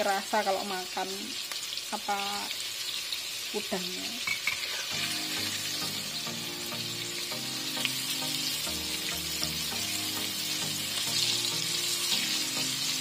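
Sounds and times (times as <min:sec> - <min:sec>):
shrimp sizzling in hot oil: 0:00.0 - 0:13.0
soft background music: 0:04.9 - 0:13.0.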